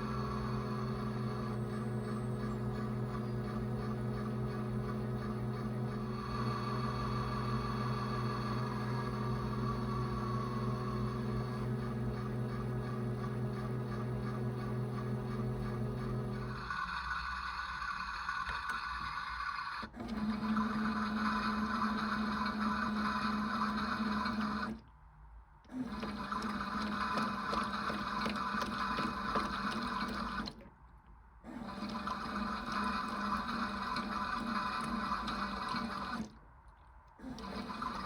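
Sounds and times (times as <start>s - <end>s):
small electric motor whirring: 0.0s - 24.8s.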